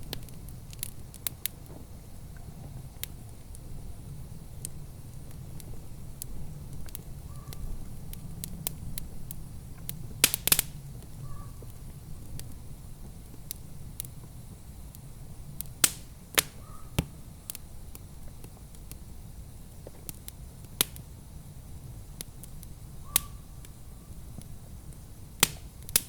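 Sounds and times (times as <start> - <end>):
low fire rumble: 0.0 - 26.0
wood fire crackling: 0.0 - 26.0
loud sharp pops: 10.2 - 10.8, 15.8 - 17.1, 25.4 - 26.0.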